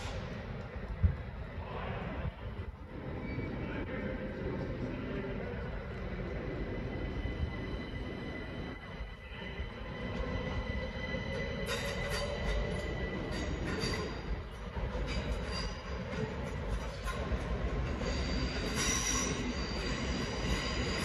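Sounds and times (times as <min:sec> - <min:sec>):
train whine and rail noise: 0:00.0 - 0:21.0
screeching wheel squeal: 0:10.6 - 0:21.0.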